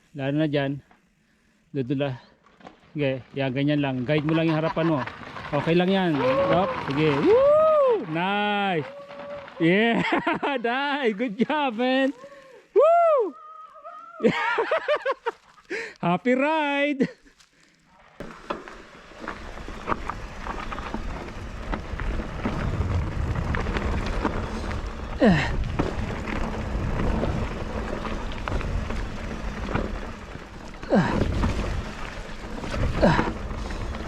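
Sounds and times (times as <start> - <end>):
bike frame and chain rattling: 2.4 - 10.6, 17.7 - 34.0
tyres crunching over dirt and stones: 2.4 - 12.6, 17.2 - 34.0
wind rumbling on microphone: 19.3 - 34.0.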